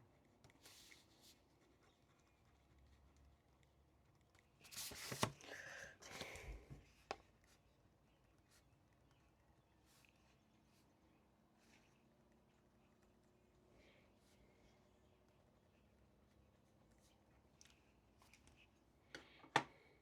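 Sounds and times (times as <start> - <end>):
paper rustling and scratching: 0.5 - 3.2, 4.3 - 7.6.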